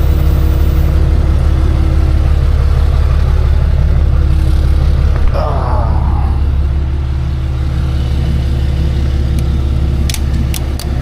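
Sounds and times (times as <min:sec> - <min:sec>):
truck engine humming: 0:00.0 - 0:11.0
sharp clicks: 0:09.3 - 0:11.0.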